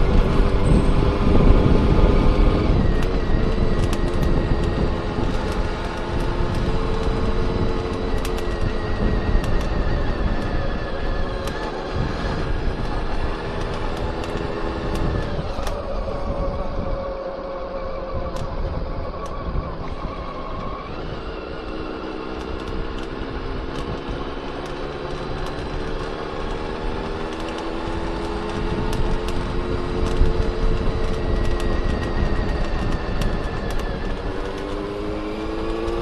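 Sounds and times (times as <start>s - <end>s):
motorcycle engine running: 0.0s - 36.0s
sharp metallic clicks: 2.8s - 8.8s, 11.3s - 15.9s, 20.5s - 36.0s.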